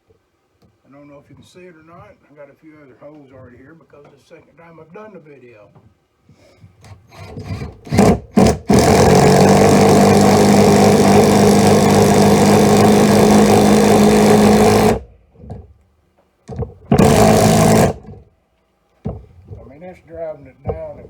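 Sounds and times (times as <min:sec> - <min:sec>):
impact driver hammering: 0:07.2 - 0:15.6, 0:16.5 - 0:18.3.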